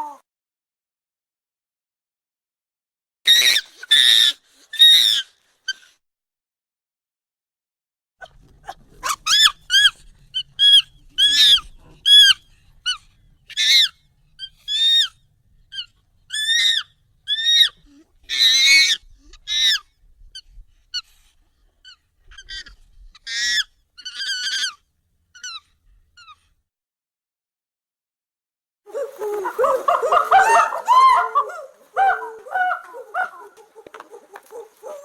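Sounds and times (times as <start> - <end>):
high-pitched monkey calls: 3.3 - 5.9, 8.6 - 21.1, 21.8 - 24.8, 25.4 - 26.5, 28.9 - 35.0.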